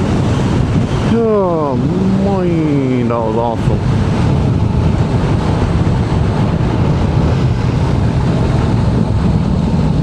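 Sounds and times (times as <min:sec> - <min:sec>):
wind rushing over microphone: 0:00.0 - 0:10.0
motorcycle engine cruising: 0:03.8 - 0:10.0.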